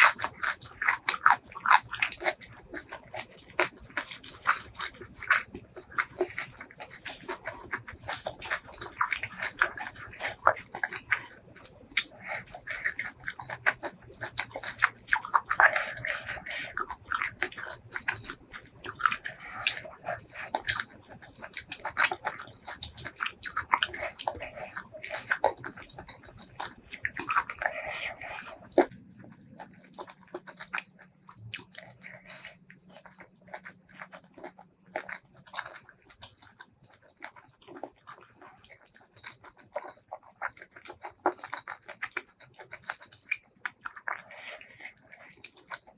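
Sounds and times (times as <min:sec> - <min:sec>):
person chewing with wet smacks: 0:00.0 - 0:45.9.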